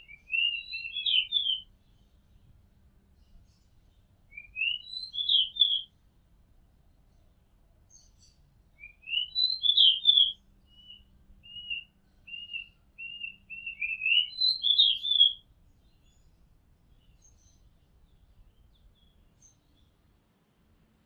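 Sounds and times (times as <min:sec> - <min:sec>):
bird singing whistled notes: 0:00.0 - 0:01.7, 0:04.3 - 0:05.9, 0:07.9 - 0:16.3.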